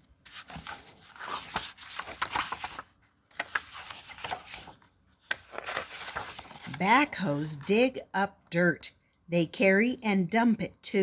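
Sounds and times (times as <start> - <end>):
book pages rustling: 0.0 - 7.7.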